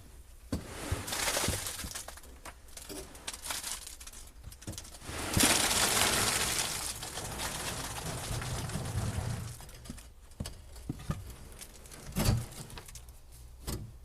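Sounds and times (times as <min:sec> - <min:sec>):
wet concrete sliding out: 0:05.0 - 0:10.0.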